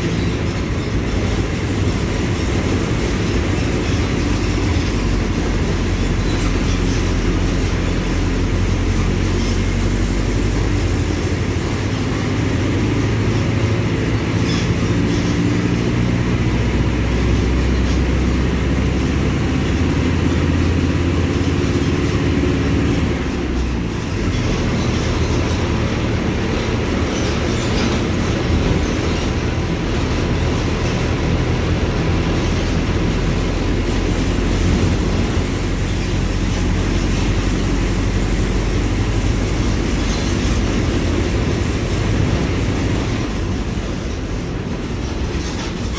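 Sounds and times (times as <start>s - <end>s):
bus diesel engine running: 0.0s - 45.9s.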